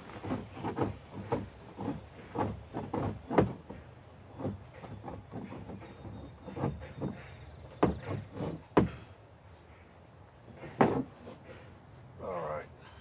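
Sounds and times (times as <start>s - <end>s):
scraper on plastic barrel: 0.0s - 9.0s, 10.5s - 11.7s.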